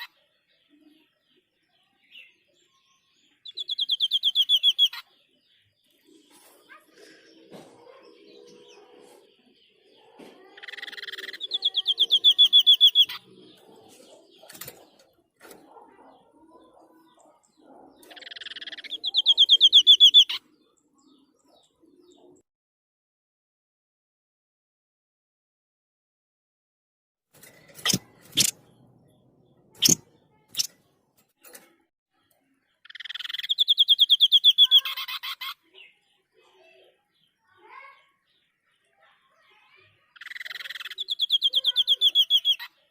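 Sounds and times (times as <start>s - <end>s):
bird rapid trill call: 3.5s - 5.0s, 10.6s - 13.2s, 18.1s - 20.4s, 27.8s - 28.6s, 29.8s - 30.0s, 32.9s - 35.6s, 40.2s - 42.7s
sharp clicks: 27.4s - 28.6s, 29.8s - 30.8s
bird buzzy rasp: 27.4s - 28.8s, 29.7s - 31.8s.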